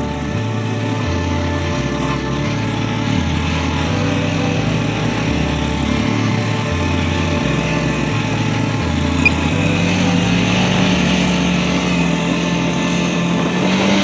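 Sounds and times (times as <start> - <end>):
background music bass line: 0.0 - 14.0
drone propellers humming: 0.0 - 14.0.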